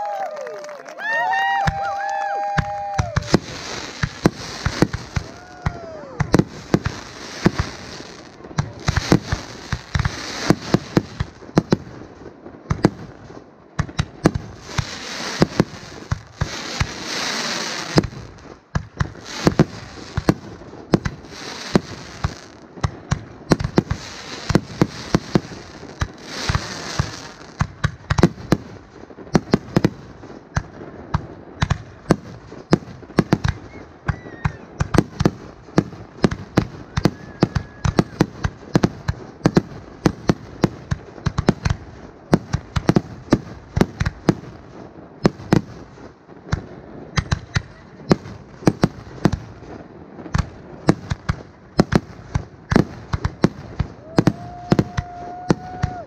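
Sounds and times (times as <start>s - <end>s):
fireworks bangs: 0.0s - 56.0s
firework hissing rush: 2.7s - 11.3s, 14.3s - 18.4s, 19.1s - 20.3s, 21.0s - 22.7s, 23.6s - 27.7s.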